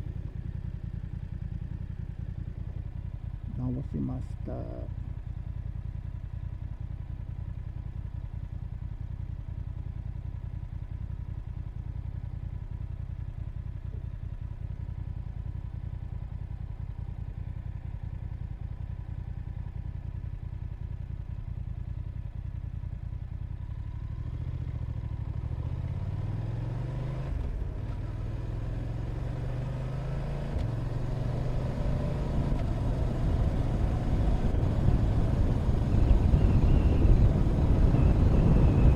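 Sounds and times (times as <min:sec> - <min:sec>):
motorcycle engine idling: 0:00.0 - 0:26.4
motorcycle accelerating through gears: 0:23.6 - 0:38.9.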